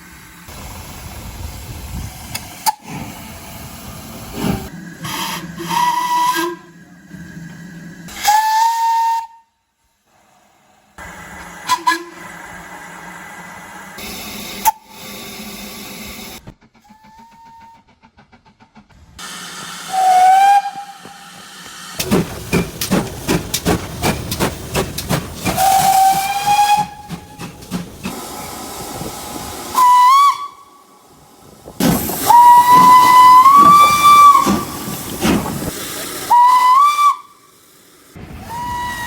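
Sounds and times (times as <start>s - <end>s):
steam hiss and rumble: 0.0s - 9.3s, 9.9s - 39.0s
steam locomotive whistle blasts: 5.0s - 6.8s, 8.1s - 9.6s, 11.6s - 12.4s, 16.8s - 17.9s, 19.2s - 21.8s, 25.5s - 27.6s, 29.7s - 30.9s, 32.2s - 34.8s, 36.3s - 37.7s, 38.3s - 39.0s.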